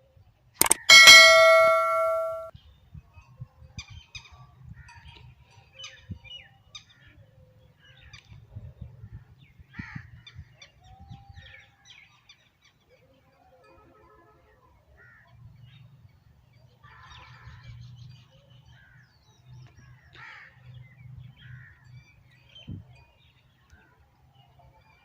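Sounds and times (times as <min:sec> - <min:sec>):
bell-like ding: 0:00.6 - 0:02.5.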